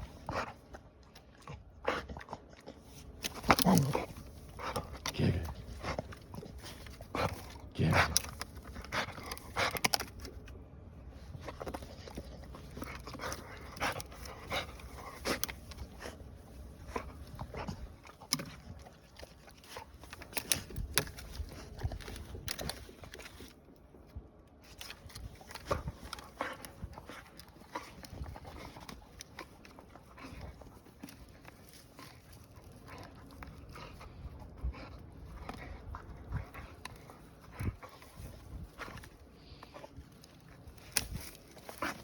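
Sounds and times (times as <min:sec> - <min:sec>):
wood snapping and cracking: 0:03.2 - 0:10.5, 0:17.2 - 0:23.6, 0:37.6 - 0:42.0
dog panting: 0:25.5 - 0:42.0.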